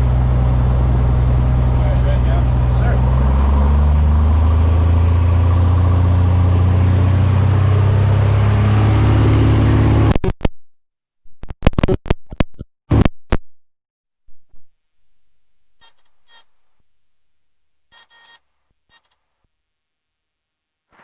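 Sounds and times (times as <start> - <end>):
aircraft piston engine droning: 0.0 - 10.0.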